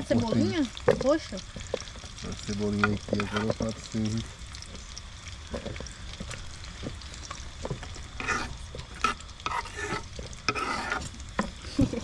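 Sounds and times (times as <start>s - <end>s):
utensils knocking and scraping: 2.8s - 3.6s, 7.7s - 12.0s.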